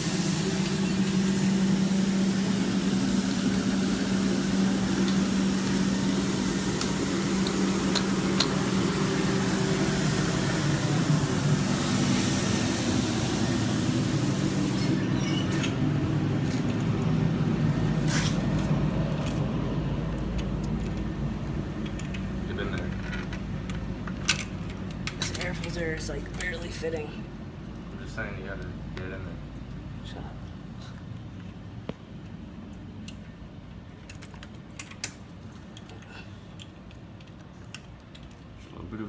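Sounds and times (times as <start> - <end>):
spraying brushing hiss: 0.0 - 15.6
street sweeper engine hum: 0.0 - 33.8.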